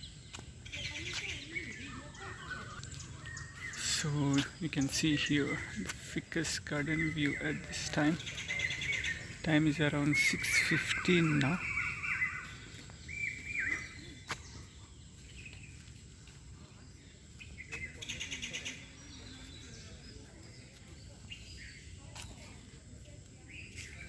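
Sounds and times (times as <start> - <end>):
wild birds calling: 0.0 - 15.9, 17.0 - 20.1
rapid bird trill: 0.6 - 14.2.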